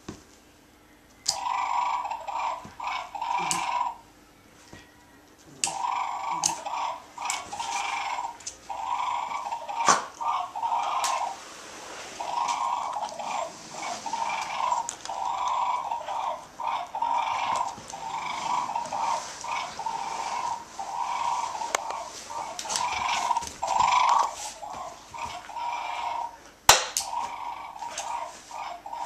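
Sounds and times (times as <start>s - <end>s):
dog growling and grunting: 2.8s - 3.9s.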